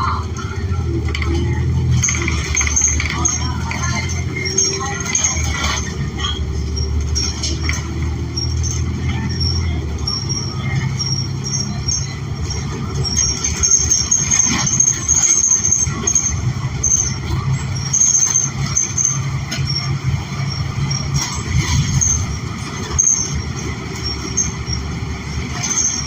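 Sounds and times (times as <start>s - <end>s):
bus engine drone: 0.0s - 26.0s
road noise: 0.0s - 26.0s
high-pitched squeaks: 0.4s - 26.0s
knocks and rattles: 1.0s - 6.0s.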